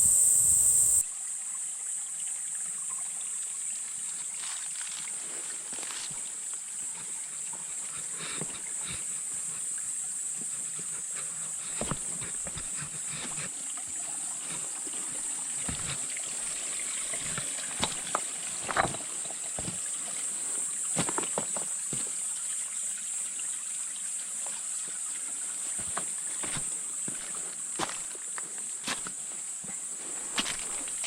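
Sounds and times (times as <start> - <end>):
high-pitched insect drone: 0.0 - 1.1, 5.7 - 31.0
footsteps crunching on a trail: 4.4 - 6.3, 10.4 - 13.5, 14.4 - 19.9, 20.9 - 22.1, 25.8 - 31.0.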